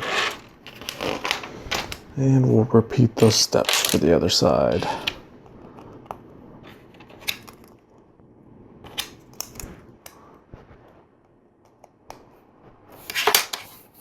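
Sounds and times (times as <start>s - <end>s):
plastic pieces clicking together: 0.0s - 2.0s, 3.2s - 4.1s
quiet rustling: 0.0s - 8.1s, 8.9s - 14.0s.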